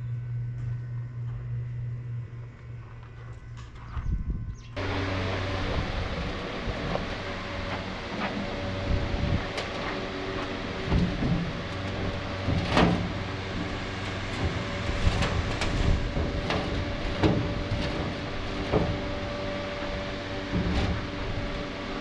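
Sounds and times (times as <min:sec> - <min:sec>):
engine running with low hum: 0:00.0 - 0:22.0.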